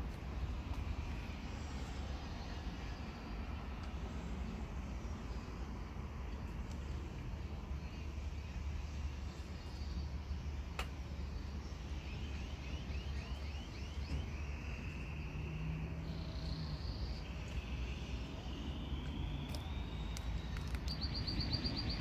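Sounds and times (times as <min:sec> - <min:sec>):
steady low rumble: 0:00.0 - 0:22.0
songbirds singing: 0:07.6 - 0:22.0.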